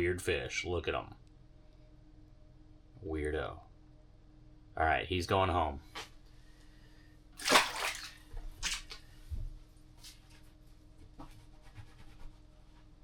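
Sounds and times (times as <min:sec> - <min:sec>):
fish splashing into water: 0:07.4 - 0:08.9
water sloshing and dripping: 0:07.4 - 0:09.0.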